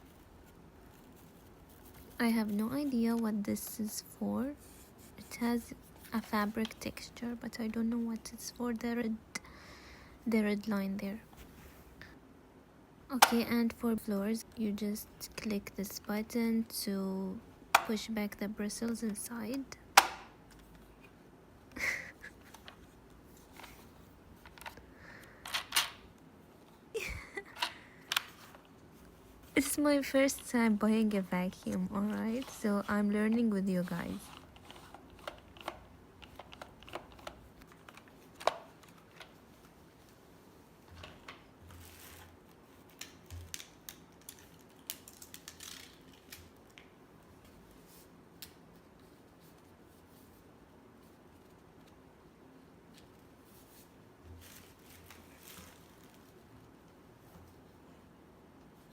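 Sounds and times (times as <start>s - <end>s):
plastic clicks and handling noises: 27.6s - 28.8s, 34.1s - 39.7s.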